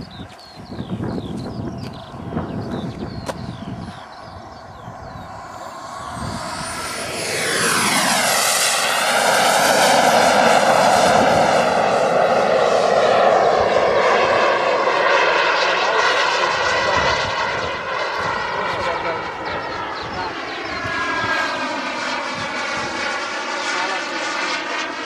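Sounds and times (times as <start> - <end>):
model jet turbine whine: 0.0 - 25.0.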